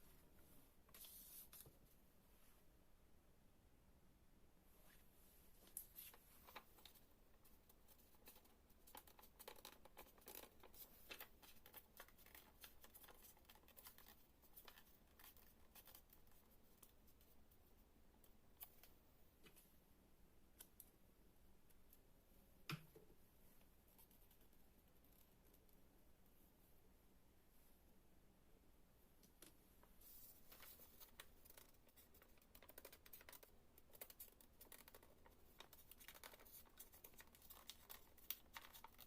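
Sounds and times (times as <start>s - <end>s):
paper rustling and folding: 5.6s - 17.0s, 30.0s - 39.0s.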